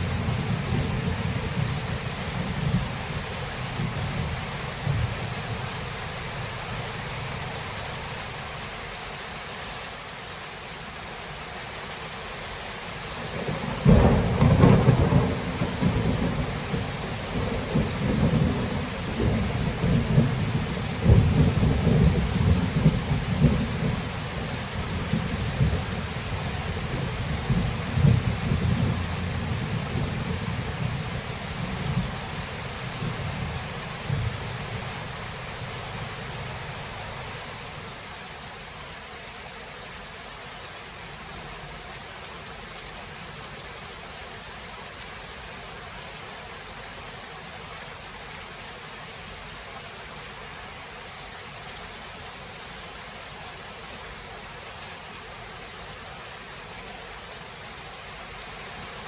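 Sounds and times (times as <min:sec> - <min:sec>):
thunder rumbling: 0:00.0 - 0:05.6, 0:13.3 - 0:37.1
steady rain: 0:00.0 - 0:59.0
loud thunderclap: 0:13.4 - 0:16.5.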